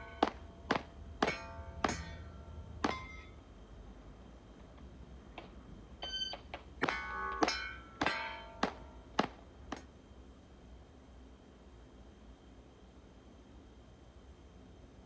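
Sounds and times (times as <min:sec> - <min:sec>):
steel target ringing: 0:00.0 - 0:03.6, 0:05.4 - 0:09.8
electronic timer beep: 0:06.0 - 0:06.5.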